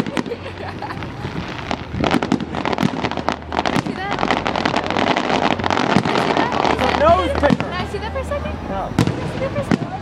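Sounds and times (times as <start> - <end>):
fireworks popping and crackling: 0.0 - 10.0
voices in background: 2.6 - 10.0.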